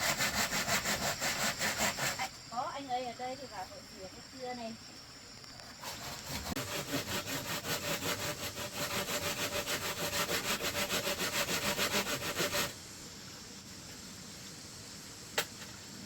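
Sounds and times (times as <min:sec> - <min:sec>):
hand saw cutting bamboo: 0:00.0 - 0:02.3, 0:05.8 - 0:12.7.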